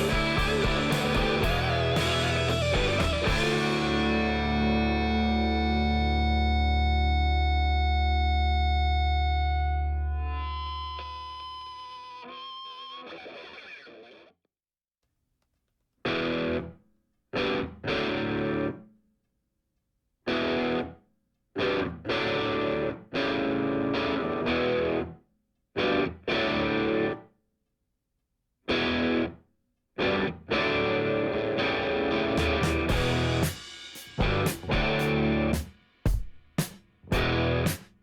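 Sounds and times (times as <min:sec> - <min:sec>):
distorted electric guitar chords: 0:00.0 - 0:13.2, 0:30.0 - 0:35.7, 0:37.1 - 0:37.8.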